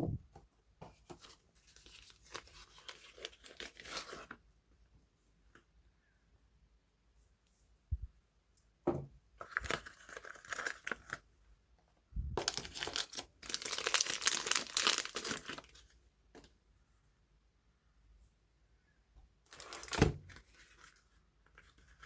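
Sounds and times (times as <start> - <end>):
wrapper crinkling and tearing: 1.7 - 4.4, 9.4 - 11.2, 12.4 - 15.9, 19.5 - 22.0.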